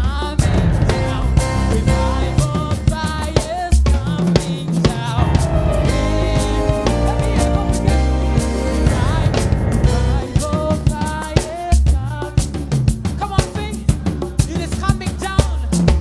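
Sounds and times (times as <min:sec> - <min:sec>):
drum kit groove: 0:00.0 - 0:16.0
worship band music: 0:00.3 - 0:12.2
bass line: 0:00.4 - 0:03.2, 0:05.2 - 0:11.1
wavering melody: 0:05.2 - 0:10.4.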